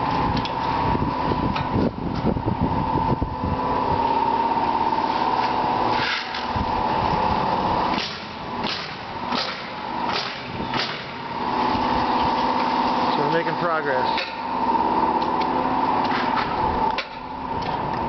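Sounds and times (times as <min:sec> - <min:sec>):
steady mechanical drone: 0:00.0 - 0:18.0
sharp nailing strikes: 0:07.9 - 0:11.2.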